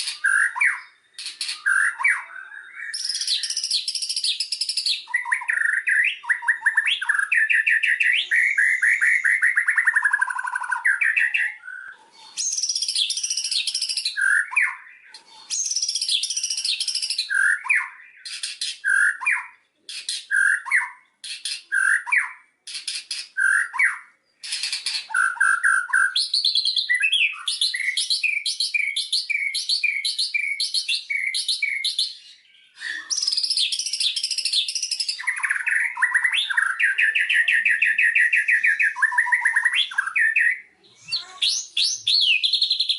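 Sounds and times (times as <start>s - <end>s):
songbird singing whistled song: 0.0s - 42.9s.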